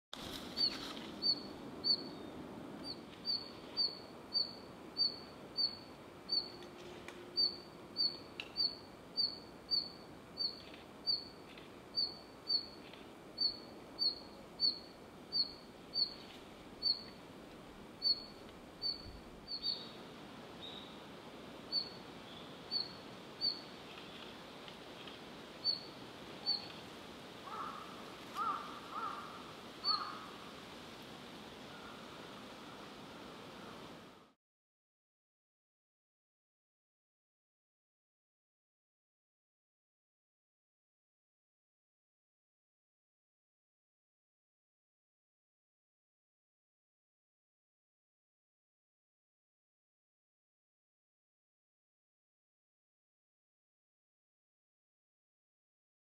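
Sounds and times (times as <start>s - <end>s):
lower bird notes: 27.4s - 30.4s.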